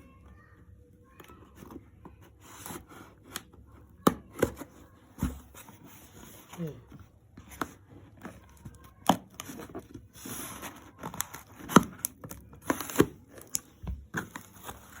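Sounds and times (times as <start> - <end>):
packaging rustling and tearing: 8.3 - 15.0.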